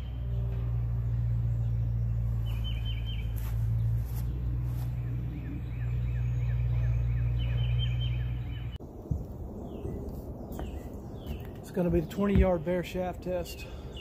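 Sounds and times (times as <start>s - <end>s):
songbird chirping: 0.0s - 14.0s.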